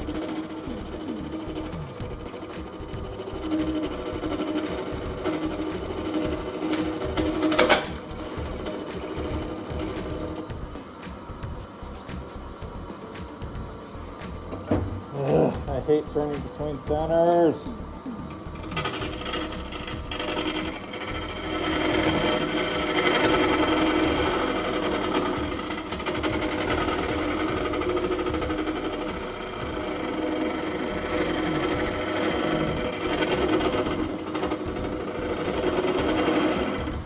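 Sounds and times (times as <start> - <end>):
turning tool scraping resin: 0.0 - 10.4, 18.4 - 37.0
wood lathe running: 0.0 - 37.0.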